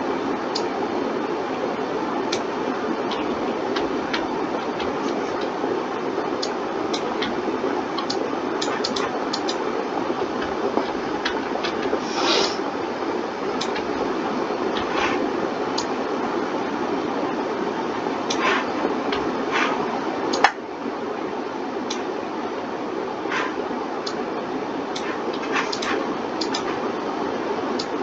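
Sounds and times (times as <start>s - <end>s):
computer fan hiss: 0.0s - 28.0s
mouse and keyboard clicks: 13.6s - 13.9s, 25.0s - 26.8s.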